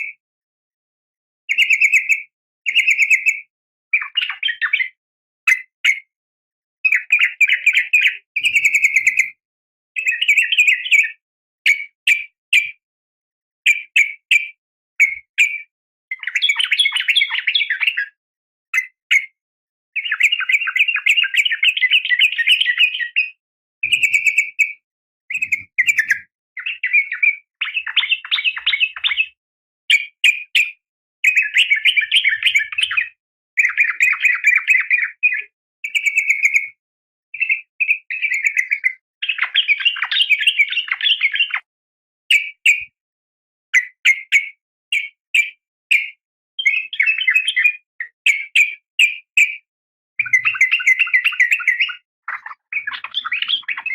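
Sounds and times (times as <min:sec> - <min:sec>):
bird rapid chattering calls: 0:07.0 - 0:09.2, 0:23.8 - 0:24.7, 0:25.3 - 0:29.4, 0:50.2 - 0:53.9.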